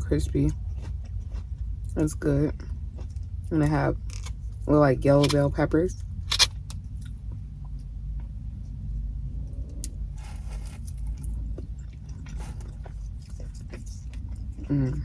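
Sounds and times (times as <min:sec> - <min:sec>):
steady low rumble: 0:00.0 - 0:15.0
chewing crispy food: 0:00.2 - 0:05.4, 0:10.2 - 0:15.0.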